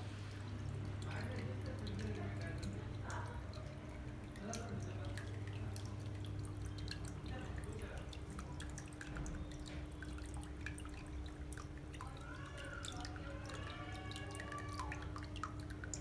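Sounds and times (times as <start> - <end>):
water trickling and dripping: 0.0 - 16.0.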